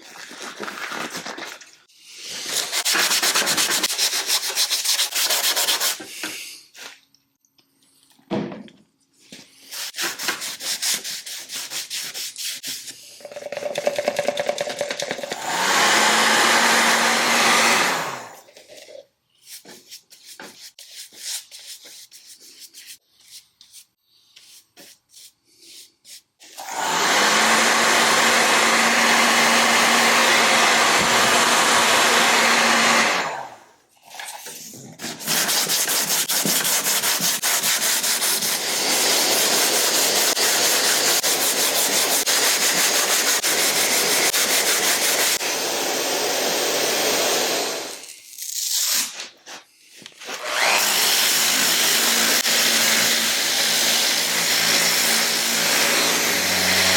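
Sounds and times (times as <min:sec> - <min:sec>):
hand rubbing and scraping: 0:09.0 - 0:13.3, 0:18.4 - 0:26.6
electric power tool running: 0:15.3 - 0:18.4, 0:26.6 - 0:33.6, 0:50.3 - 0:56.9.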